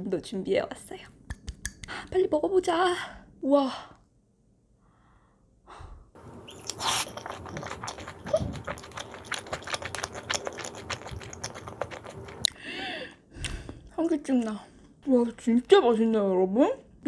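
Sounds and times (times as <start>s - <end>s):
crispy chicken chewing: 6.2s - 12.6s.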